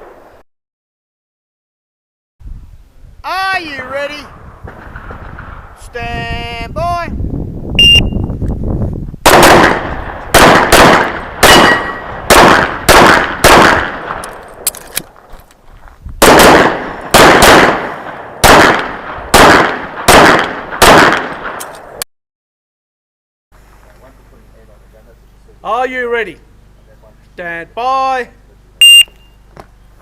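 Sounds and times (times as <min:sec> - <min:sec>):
shot timer beep: 0:07.8 - 0:08.3, 0:28.8 - 0:29.4
handgun shots: 0:09.3 - 0:15.1, 0:16.2 - 0:22.0.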